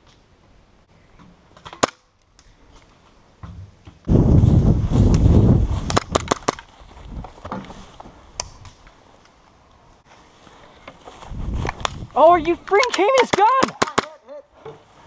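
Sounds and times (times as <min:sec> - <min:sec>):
microphone handling rumble: 0:04.1 - 0:08.7, 0:11.1 - 0:12.6
airsoft gun snaps: 0:05.9 - 0:06.6.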